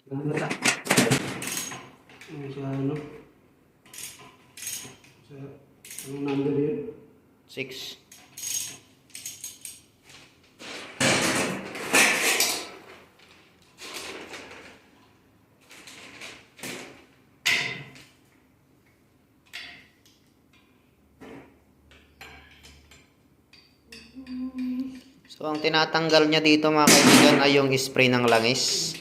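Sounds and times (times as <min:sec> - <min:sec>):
metal parts scraping: 0:03.9 - 0:05.1, 0:08.1 - 0:09.9.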